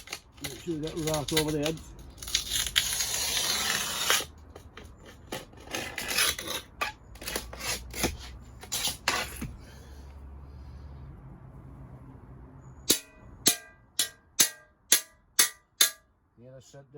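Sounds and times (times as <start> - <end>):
glass cutter scratching glass: 0.0 - 9.5.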